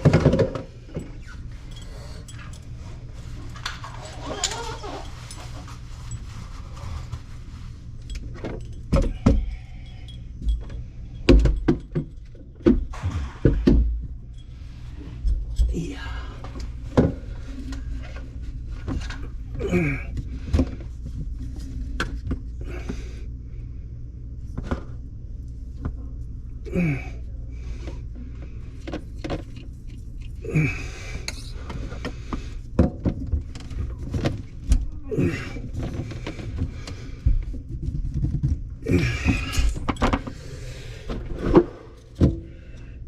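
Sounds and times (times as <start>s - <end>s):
steady low hum: 0.0s - 43.0s
short squeaks: 3.9s - 5.6s.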